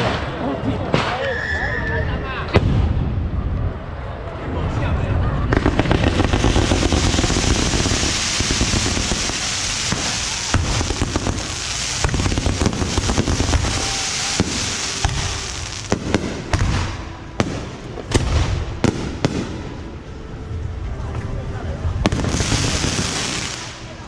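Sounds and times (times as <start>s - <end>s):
firecrackers popping: 5.5s - 19.7s, 22.0s - 24.0s.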